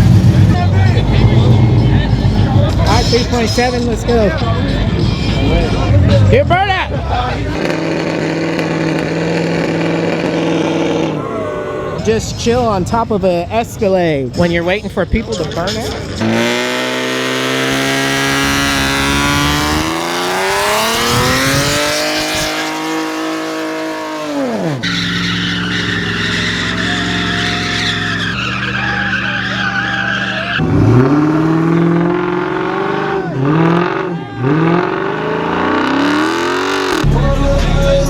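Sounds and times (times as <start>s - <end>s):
car engine revving: 0.0s - 12.1s, 16.1s - 38.0s
tyres squealing: 16.2s - 37.1s.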